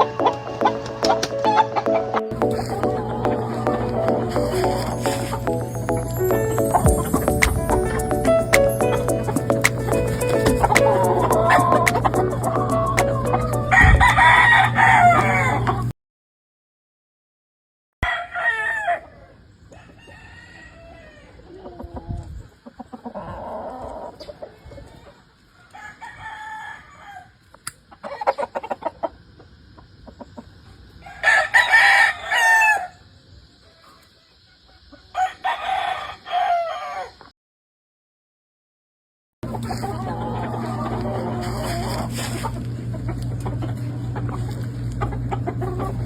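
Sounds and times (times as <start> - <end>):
chickens clucking: 0.0 - 15.9, 20.9 - 25.7, 27.5 - 31.2, 33.5 - 35.4, 39.4 - 46.0
roosters crowing: 7.8 - 15.9, 18.0 - 22.0, 25.5 - 27.4, 31.0 - 33.1, 34.6 - 37.3, 39.4 - 46.0.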